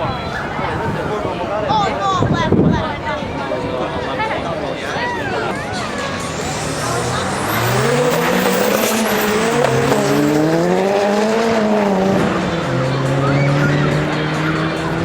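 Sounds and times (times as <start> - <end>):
car engine revving: 4.9 - 15.0
tyre squeal: 5.2 - 11.6, 13.0 - 14.8.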